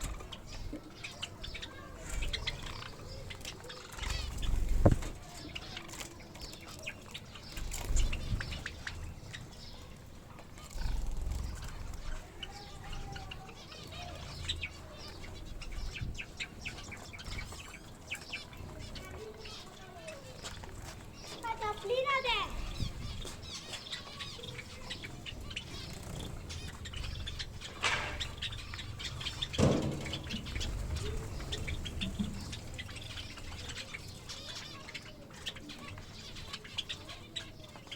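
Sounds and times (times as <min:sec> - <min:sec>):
finches chirping: 0:00.0 - 0:37.9
wings fluttering: 0:01.6 - 0:09.2, 0:10.3 - 0:14.3, 0:20.4 - 0:34.7
low rumbling: 0:26.3 - 0:33.7
loud knock: 0:29.6 - 0:31.2.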